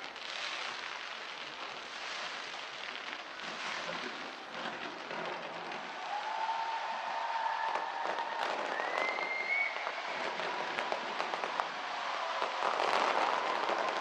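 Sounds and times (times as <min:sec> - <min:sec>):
fireworks crackling: 0:00.0 - 0:14.0
crowd applauding and cheering: 0:05.6 - 0:14.0.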